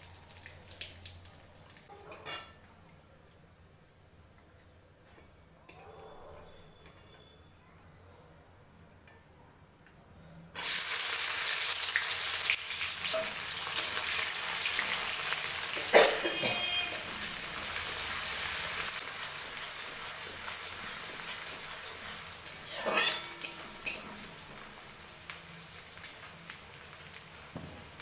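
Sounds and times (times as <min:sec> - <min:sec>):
metal utensil clanking on pan: 0:01.9 - 0:02.6, 0:13.0 - 0:14.0, 0:15.7 - 0:17.9, 0:20.7 - 0:24.6
food sizzling in hot oil: 0:10.6 - 0:28.0.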